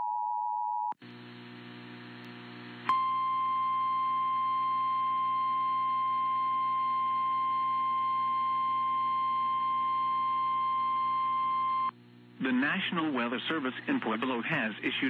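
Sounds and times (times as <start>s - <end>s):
radio hum and hiss: 1.0s - 2.9s, 10.7s - 15.0s.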